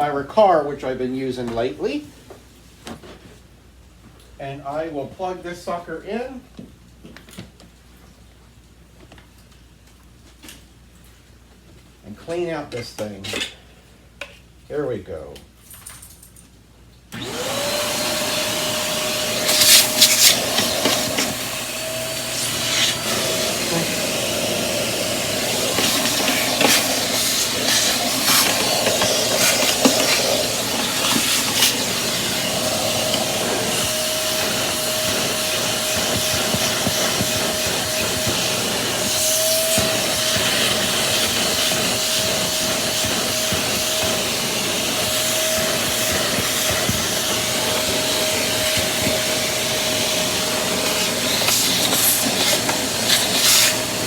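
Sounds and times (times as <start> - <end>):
vacuum cleaner whining: 17.1 - 54.0.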